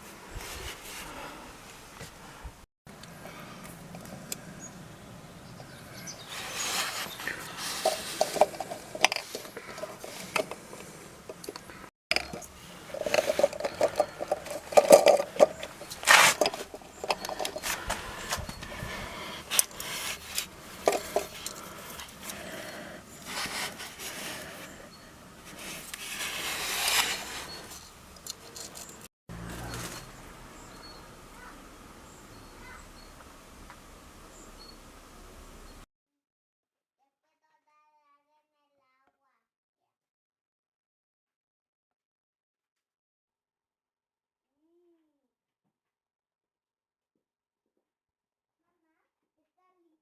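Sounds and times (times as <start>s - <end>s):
faint steady background noise: 0.0s - 35.8s
scraping or rustling: 6.1s - 30.7s.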